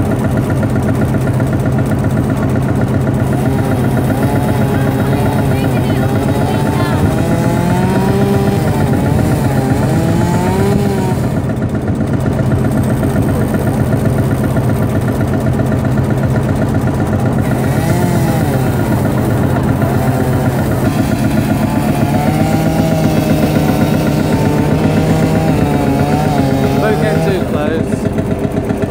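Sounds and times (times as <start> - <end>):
tractor engine running: 0.0 - 28.9.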